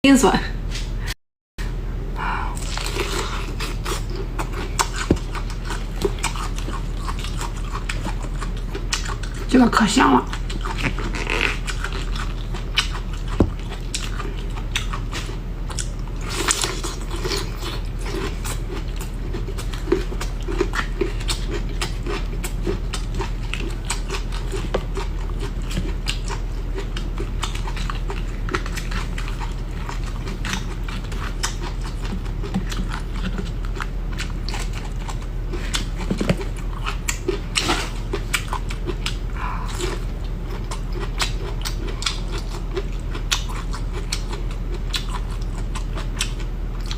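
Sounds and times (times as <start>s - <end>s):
steady low hum: 0.0s - 46.9s
person chewing and crunching: 2.5s - 9.5s, 10.2s - 46.9s.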